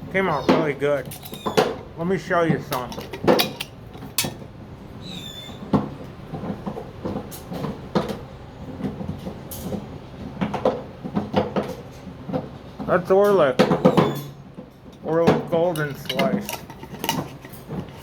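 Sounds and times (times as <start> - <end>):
clicks and knocks of handling: 0.4 - 4.5, 5.6 - 18.0
high bird chirp: 5.0 - 5.6.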